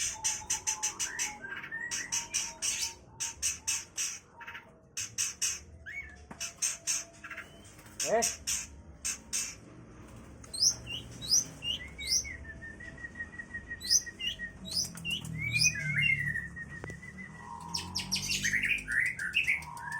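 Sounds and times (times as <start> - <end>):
shrike singing varied song: 10.5 - 12.4, 13.7 - 19.9.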